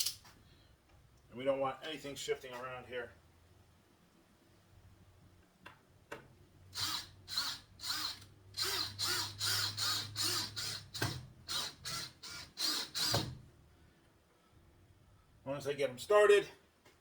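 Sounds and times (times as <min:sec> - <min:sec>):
power drill driving screws into wood: 0:06.7 - 0:13.4.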